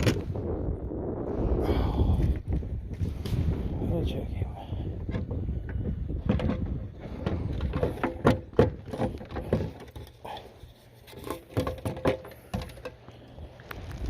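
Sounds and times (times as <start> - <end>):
fishing gear clicking and knocking: 4.9 - 13.1.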